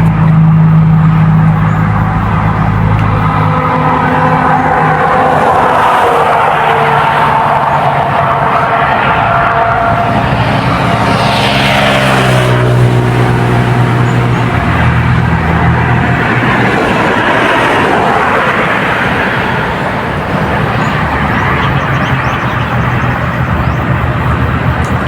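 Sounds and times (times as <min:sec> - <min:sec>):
motor engine passing by: 0:00.0 - 0:25.0.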